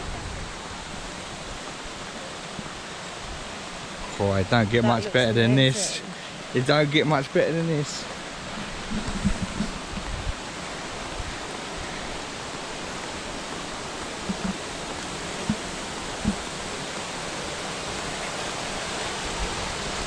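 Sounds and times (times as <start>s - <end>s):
waterfall rushing: 0.0s - 20.0s
soft low thumps: 8.5s - 10.4s, 14.2s - 16.6s.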